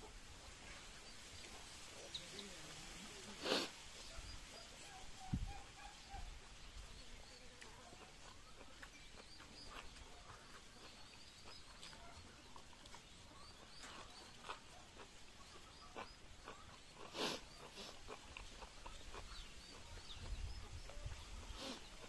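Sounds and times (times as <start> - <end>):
faint bird chirps: 3.9 - 22.0
chewing and lip-smacking: 7.5 - 22.0.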